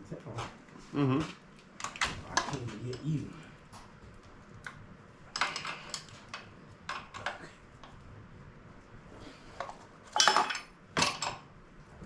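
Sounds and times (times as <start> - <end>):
metal tools clinking on metal: 10.1 - 11.4.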